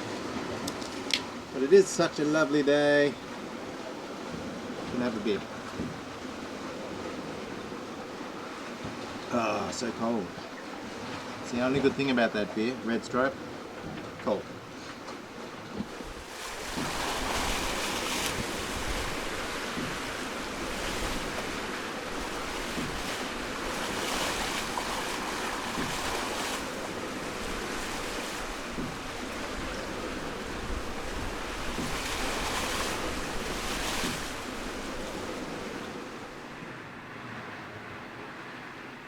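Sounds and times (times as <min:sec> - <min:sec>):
water washing along boat hulls: 0:00.0 - 0:38.5
wind buffeting microphone: 0:13.6 - 0:36.4.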